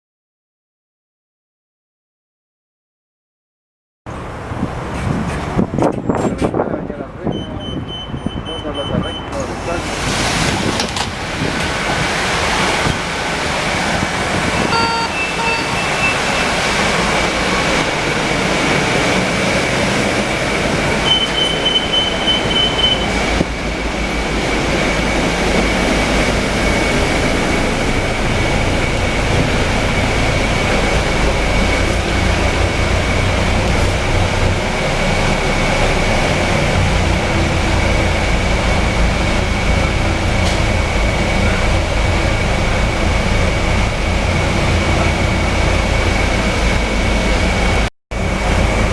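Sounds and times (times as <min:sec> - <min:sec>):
bus engine and road noise: 0:04.1 - 0:48.9
beeping tone: 0:07.3 - 0:09.3, 0:14.5 - 0:16.7, 0:21.0 - 0:23.3
short electronic beeps: 0:07.3 - 0:09.3, 0:14.6 - 0:16.6, 0:21.0 - 0:23.2.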